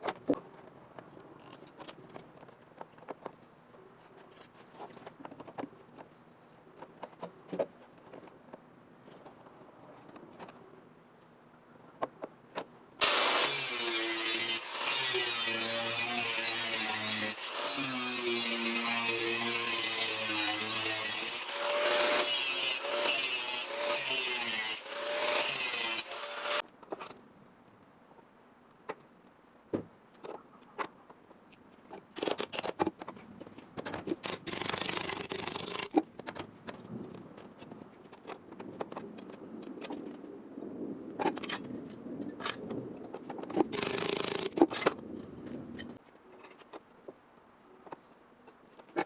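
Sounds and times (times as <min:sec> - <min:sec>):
power tool grinding metal: 0:13.0 - 0:26.6.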